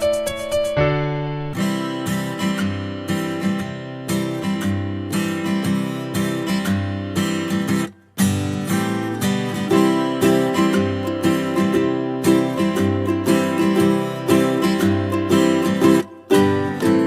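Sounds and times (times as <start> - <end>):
strummed acoustic guitar music: 0.0 - 17.0.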